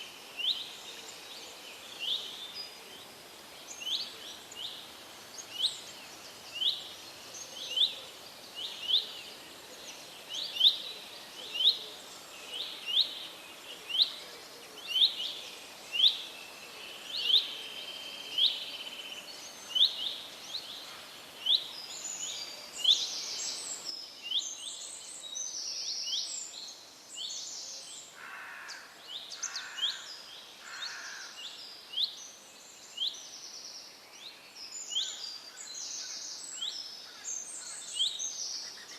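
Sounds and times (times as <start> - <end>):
background hiss: 0.0 - 38.9.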